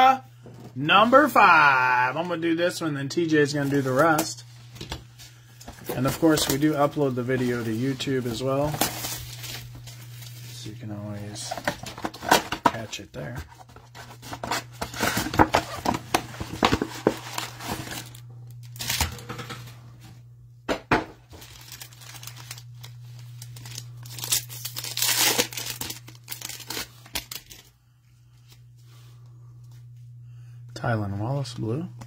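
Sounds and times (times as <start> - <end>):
steady low hum: 0.2 - 32.0
plastic wrapping crinkling and tearing: 3.5 - 10.7, 13.8 - 19.3, 21.2 - 27.8.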